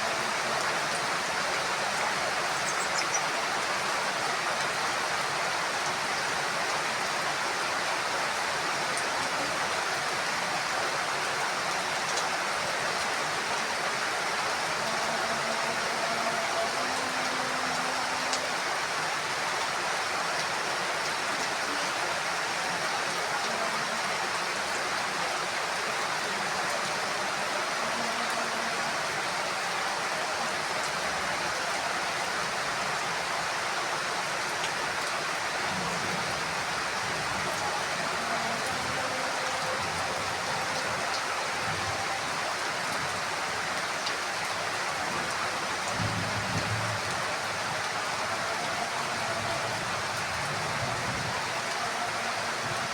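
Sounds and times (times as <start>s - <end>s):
heavy rain hissing: 0.0s - 52.9s.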